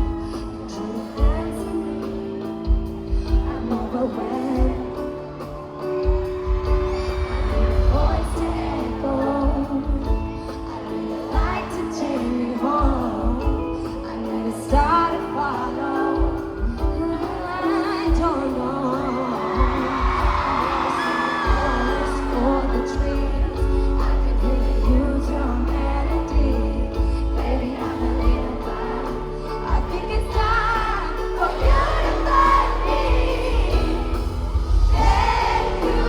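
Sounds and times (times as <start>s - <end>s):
woman singing slow ballad: 0.0s - 36.0s
deep bass: 6.7s - 10.1s, 21.5s - 36.0s.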